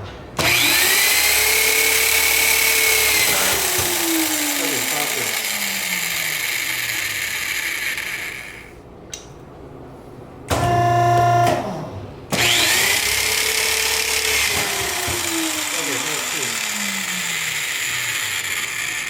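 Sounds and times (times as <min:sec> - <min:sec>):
high-pitched whir: 0:00.4 - 0:08.7, 0:12.4 - 0:19.0
power drill driving screw: 0:00.4 - 0:08.7, 0:12.4 - 0:19.0.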